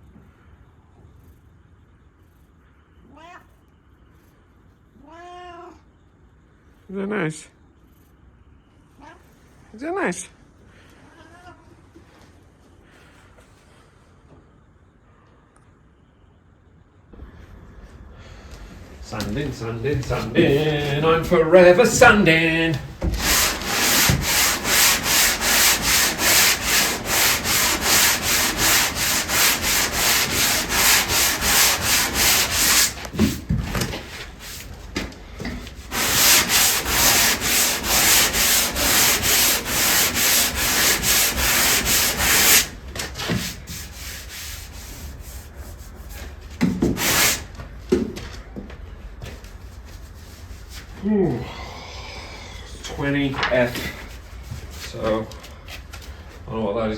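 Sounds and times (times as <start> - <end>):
sandpaper rubbing on wood: 19.1 - 33.5, 35.6 - 47.5.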